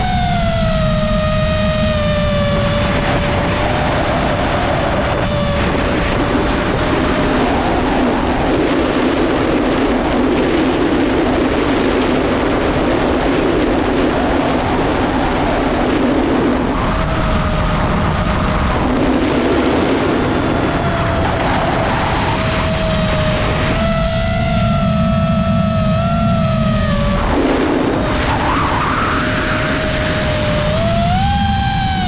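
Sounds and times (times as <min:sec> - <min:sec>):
drone motors whining: 0:00.0 - 0:32.0
rushing wind: 0:00.0 - 0:32.0.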